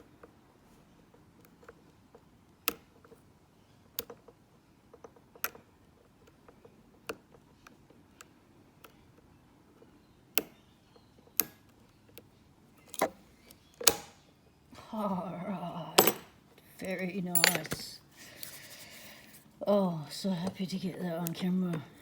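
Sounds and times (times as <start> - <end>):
padlock pins setting clicks: 10.3 - 10.7, 11.3 - 14.2, 16.0 - 16.3, 17.3 - 18.5
lock pick clicking in padlock: 11.4 - 11.7, 13.8 - 14.2.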